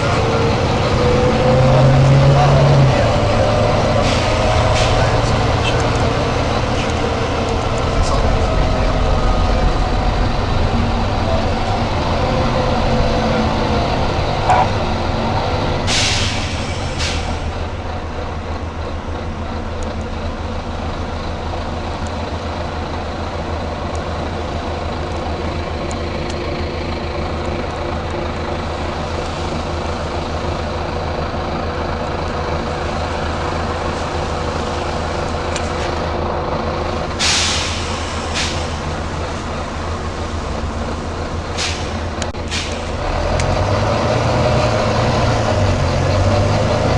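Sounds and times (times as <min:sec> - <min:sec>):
bus diesel engine running: 0:00.0 - 0:46.9
compressed air hisses: 0:15.9 - 0:17.4, 0:37.2 - 0:38.9.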